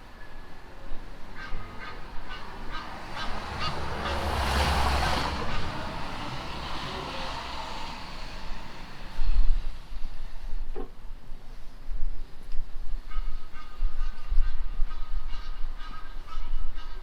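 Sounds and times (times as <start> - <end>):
vehicle passing with rumble: 1.0 - 10.5
goose honking: 1.3 - 9.2.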